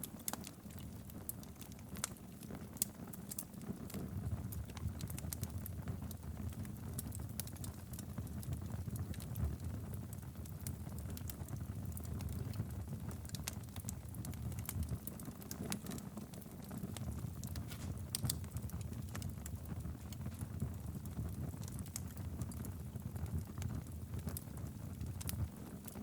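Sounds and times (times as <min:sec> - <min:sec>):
fire crackling and popping: 0:00.0 - 0:26.0
fire flames rumbling: 0:00.2 - 0:26.0.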